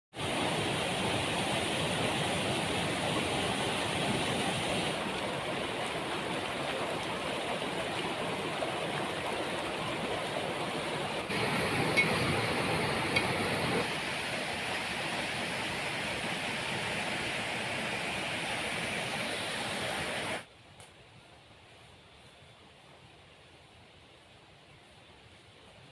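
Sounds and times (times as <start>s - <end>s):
waterfall roaring: 0.2s - 20.5s.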